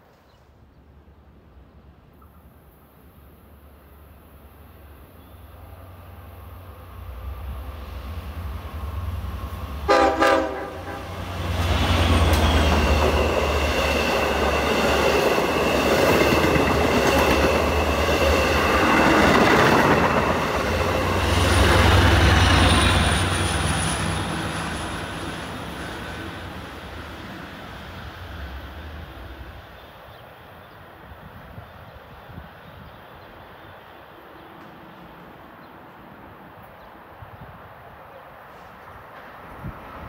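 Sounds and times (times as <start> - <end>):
diesel locomotive engine rumble: 3.5 - 30.1
train coaches rumbling and clattering: 5.4 - 40.0
train horn blast: 9.8 - 11.3.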